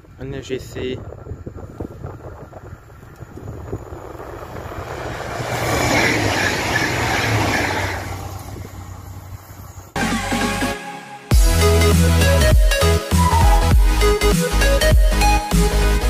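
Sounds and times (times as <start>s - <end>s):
train passing at speed: 2.7s - 10.0s
music: 10.0s - 16.0s.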